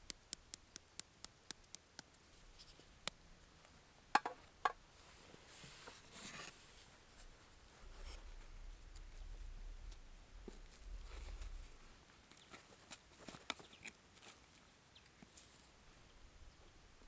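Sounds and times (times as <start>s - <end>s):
soft scraping: 5.0s - 13.3s
low rumble: 7.9s - 12.0s.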